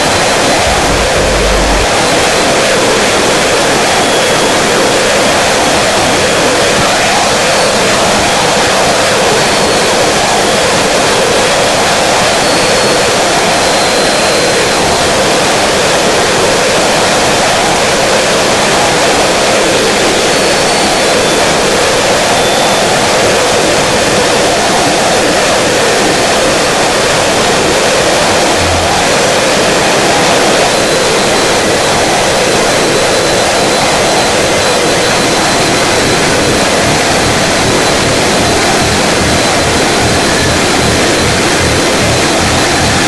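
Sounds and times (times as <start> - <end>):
harsh noise music: 0.0 - 2.8, 27.6 - 30.6.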